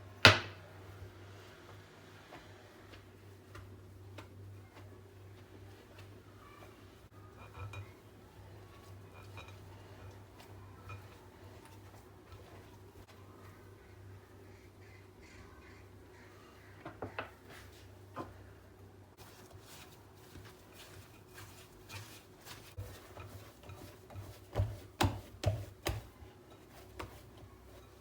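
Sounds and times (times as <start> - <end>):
objects knocking and tapping: 19.7 - 28.0.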